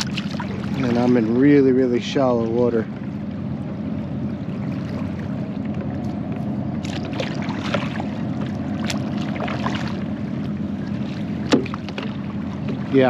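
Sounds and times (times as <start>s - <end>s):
kayak paddle splashing in water: 0.0s - 1.4s, 6.8s - 13.0s
low engine drone: 0.0s - 13.0s.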